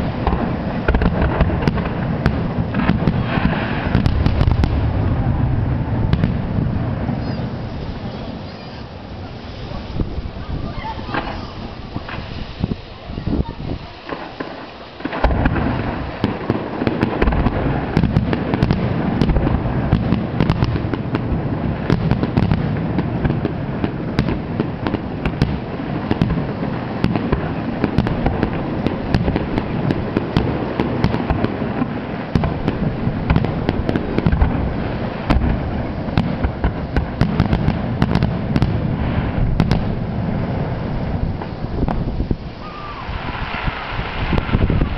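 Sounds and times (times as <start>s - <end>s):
low rumble: 0.0s - 13.2s
fireworks bursting and crackling: 0.0s - 44.9s.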